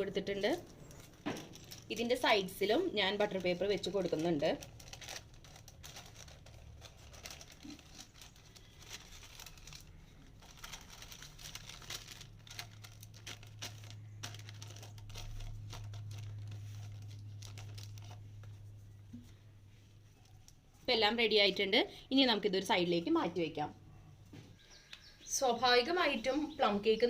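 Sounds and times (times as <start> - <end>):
low steady hum: 0.0 - 27.0
paper rustling and crinkling: 0.6 - 20.6.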